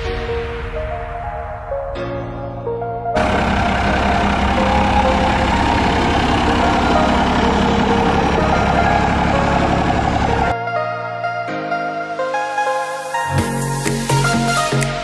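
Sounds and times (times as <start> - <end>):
diesel truck engine running: 3.2 - 10.5.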